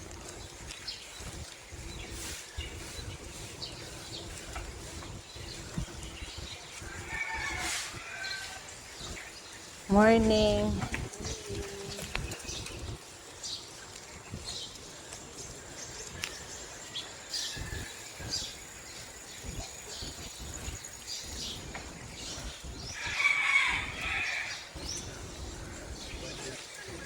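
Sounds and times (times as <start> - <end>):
small birds chirping: 0.0 - 27.0
wind rumble on microphone: 0.0 - 27.0
rooster crowing: 6.9 - 8.7, 23.0 - 24.7.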